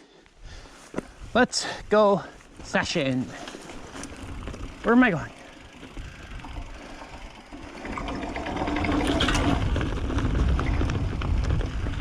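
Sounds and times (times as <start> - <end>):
bike tyres on rocky trail: 0.0 - 12.0
wind rumble on microphone: 7.8 - 12.0.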